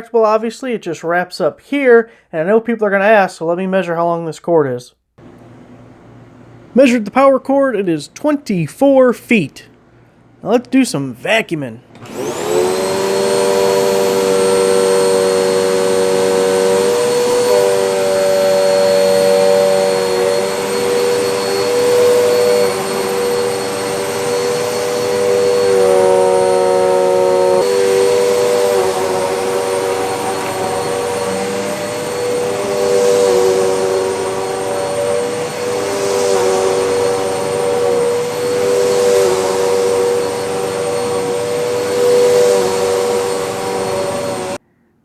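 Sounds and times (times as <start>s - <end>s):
vacuum cleaner motor whine: 5.2s - 6.8s, 11.9s - 44.6s.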